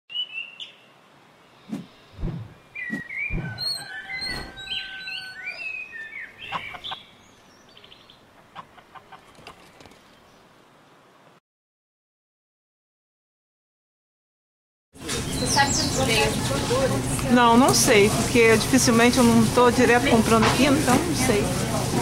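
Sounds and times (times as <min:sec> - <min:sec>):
birds chirping: 0:00.1 - 0:11.0, 0:15.2 - 0:16.7
low thumps: 0:01.7 - 0:02.6, 0:03.3 - 0:03.6.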